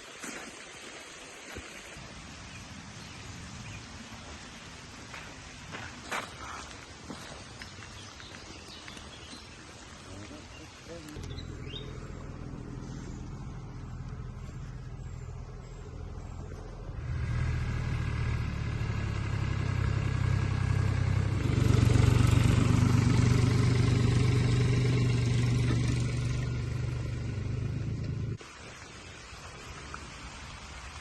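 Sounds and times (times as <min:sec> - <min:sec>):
engine running steadily: 0:11.0 - 0:28.4.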